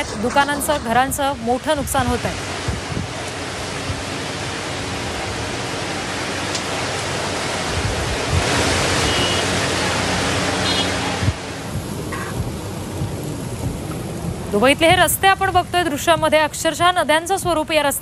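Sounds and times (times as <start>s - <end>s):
heavy rain: 0.0s - 18.0s
running floodwater: 0.0s - 18.0s.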